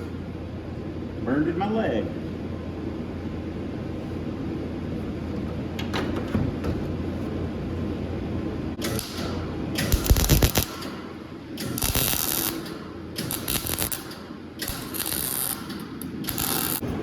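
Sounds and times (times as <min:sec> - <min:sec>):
arc welding crackling: 0:08.8 - 0:17.0.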